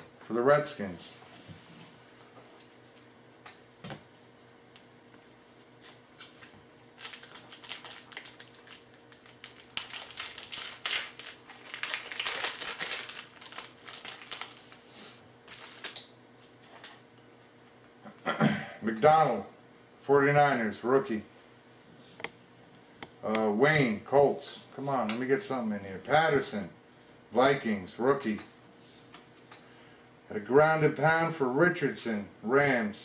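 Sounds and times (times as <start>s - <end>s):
foil wrapper crinkling: 5.8s - 17.0s.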